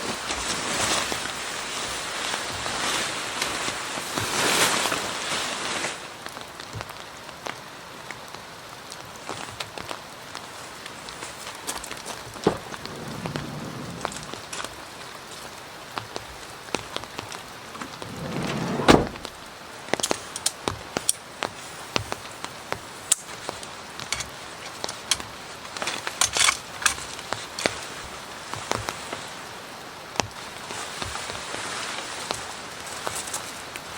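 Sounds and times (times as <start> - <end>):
rain hissing: 0.0 - 33.9
raindrops ticking close by: 6.0 - 18.5, 19.1 - 33.9
low rumble: 12.4 - 14.5.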